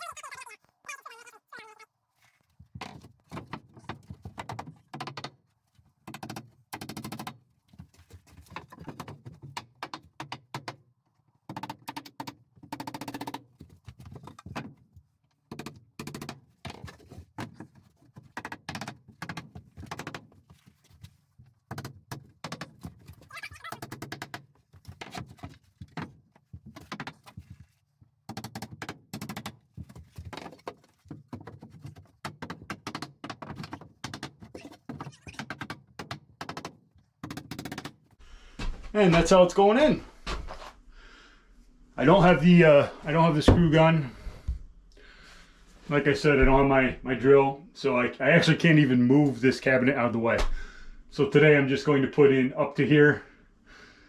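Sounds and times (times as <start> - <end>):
wooden boards knocking: 2.8 - 5.4, 8.4 - 10.8, 15.5 - 20.3, 21.7 - 27.6, 28.3 - 39.4.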